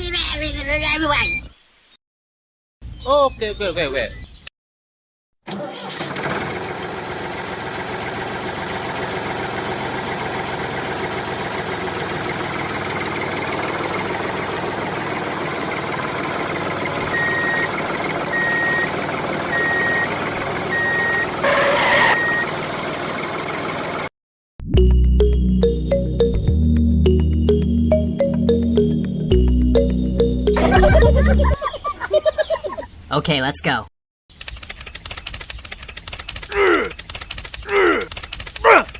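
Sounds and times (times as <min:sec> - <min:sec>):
small tractor engine running: 0:05.5 - 0:24.1, 0:34.3 - 0:38.9
high reversing beeps: 0:17.1 - 0:22.5.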